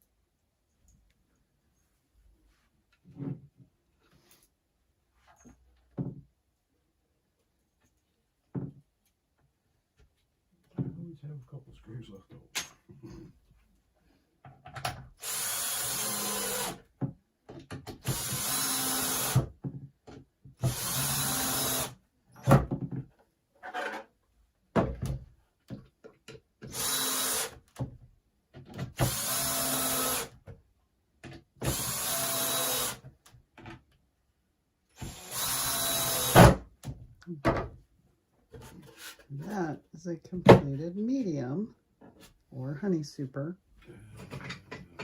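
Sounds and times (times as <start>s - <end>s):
power drill driving screws into wood: 15.2s - 16.9s, 17.9s - 19.5s, 20.6s - 22.7s, 26.6s - 27.8s, 28.8s - 30.4s, 31.6s - 33.1s, 34.9s - 36.8s.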